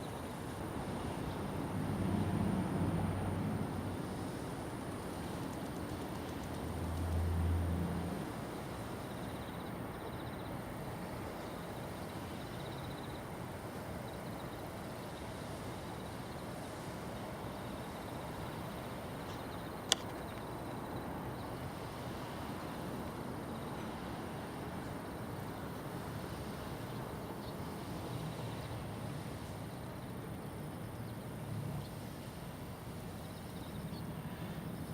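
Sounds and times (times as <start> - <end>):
outdoor background noise: 0.0 - 34.9
sharp click: 19.8 - 20.2.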